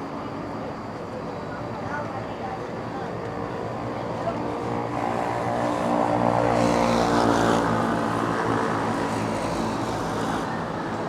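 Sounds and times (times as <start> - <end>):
city traffic noise: 0.0 - 11.0.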